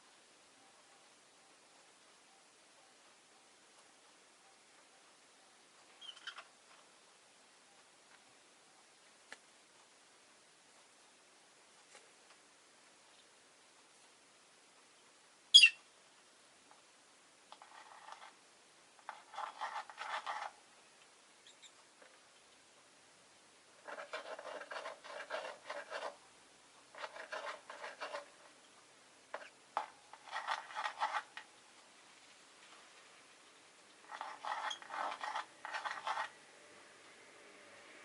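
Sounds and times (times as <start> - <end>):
lovebird chattering: 15.5 - 15.8, 21.4 - 21.8.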